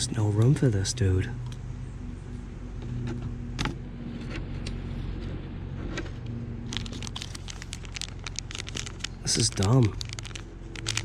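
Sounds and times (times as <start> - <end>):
steady low hum: 0.0 - 11.0
small metal parts clicking: 6.8 - 11.0.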